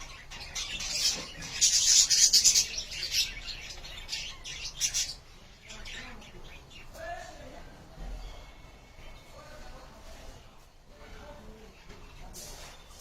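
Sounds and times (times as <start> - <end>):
budgerigars chirping and squawking: 0.0 - 7.0.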